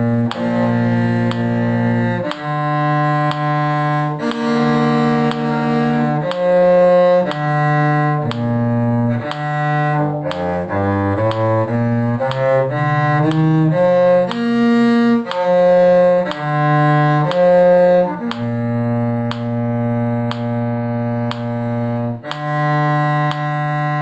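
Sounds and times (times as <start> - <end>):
bowed string instruments playing: 0.0 - 24.0.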